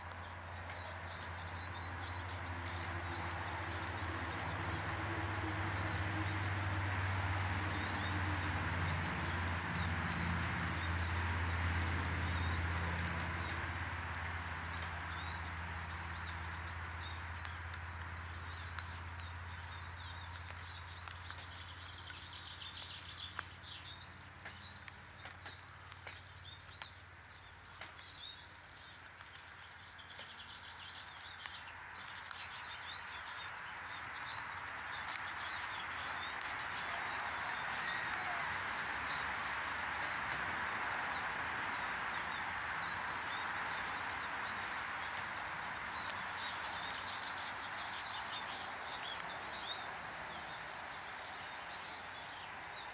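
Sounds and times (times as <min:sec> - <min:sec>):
small birds chirping: 0:00.0 - 0:52.9
sharp ticks: 0:00.1 - 0:52.9.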